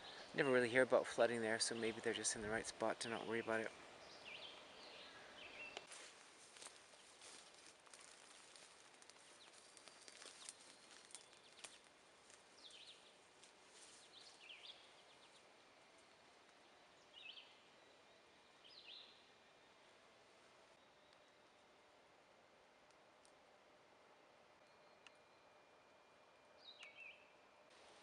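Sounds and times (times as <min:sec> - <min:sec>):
faint bird chirps: 0:24.6 - 0:27.4.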